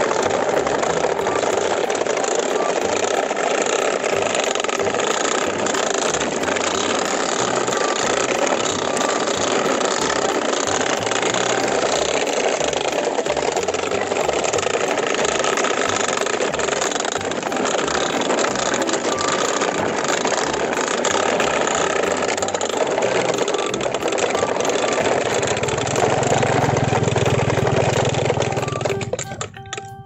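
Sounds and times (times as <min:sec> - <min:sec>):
toy truck wheels rattling on gravel: 0:00.0 - 0:29.7.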